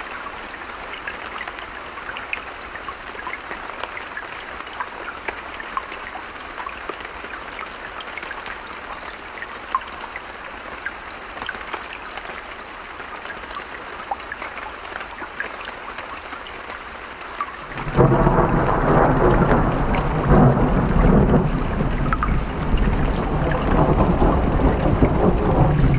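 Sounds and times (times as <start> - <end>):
steady rain: 0.0 - 25.9
deep thunder rumble: 17.8 - 25.9.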